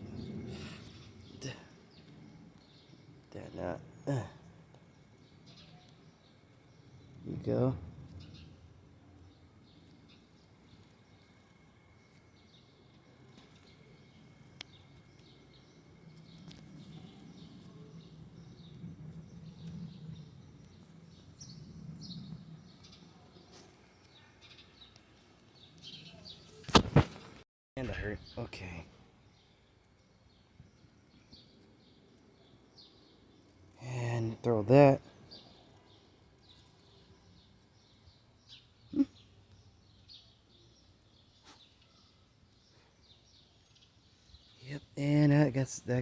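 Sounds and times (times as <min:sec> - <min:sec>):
low hum: 0:00.0 - 0:23.2
small birds chirping: 0:00.0 - 0:46.0
sharp click: 0:26.6 - 0:27.2.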